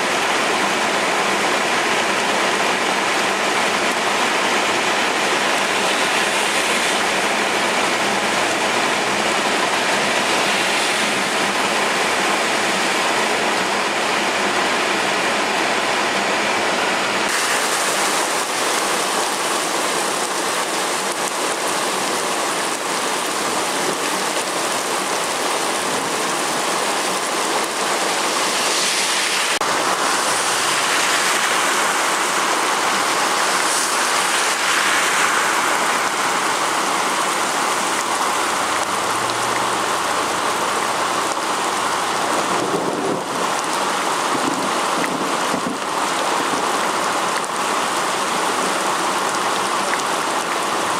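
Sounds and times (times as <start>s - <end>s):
hard rain pouring: 0.0s - 50.9s.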